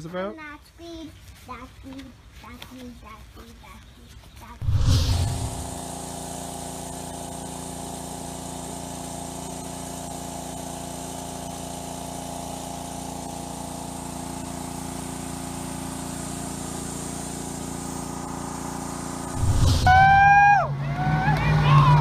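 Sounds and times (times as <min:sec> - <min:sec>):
engine humming steadily: 0:04.6 - 0:22.0.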